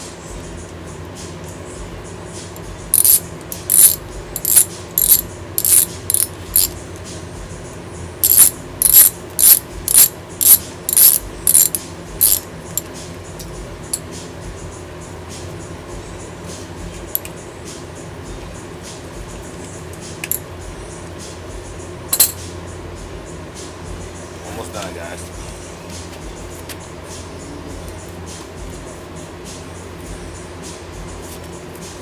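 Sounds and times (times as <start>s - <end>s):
ratchet wrench clicking: 2.9s - 6.8s, 8.2s - 14.0s, 22.1s - 22.4s.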